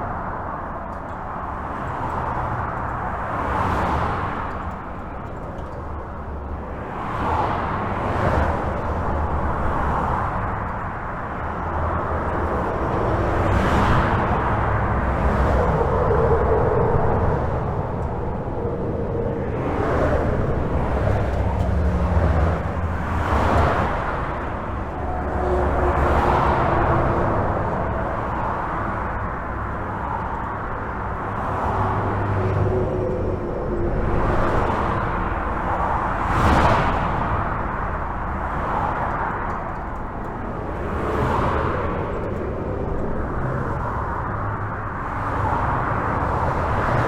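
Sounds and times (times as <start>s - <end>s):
highway traffic rumble: 0.0s - 47.0s
vehicles passing: 0.0s - 47.0s.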